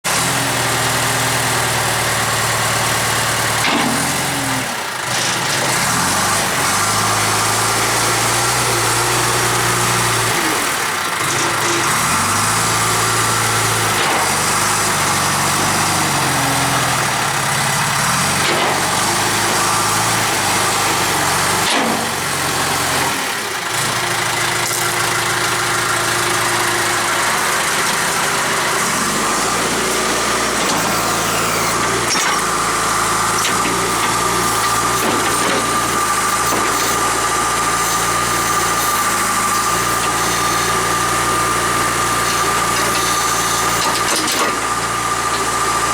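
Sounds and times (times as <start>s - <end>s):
diesel engine running: 0.1s - 45.9s.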